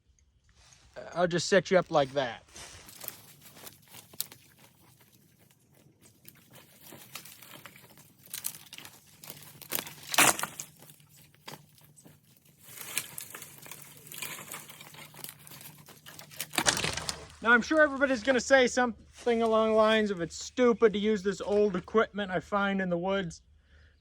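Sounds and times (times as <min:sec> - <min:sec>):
dry leaves and sticks crunching: 0:01.9 - 0:18.5.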